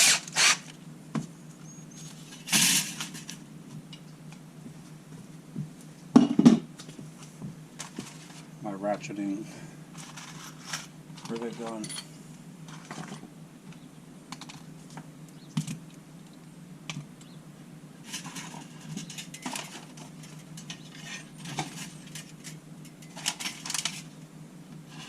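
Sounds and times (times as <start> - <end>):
steady low hum: 0.0 - 25.0
small metallic clinks: 11.3 - 12.2.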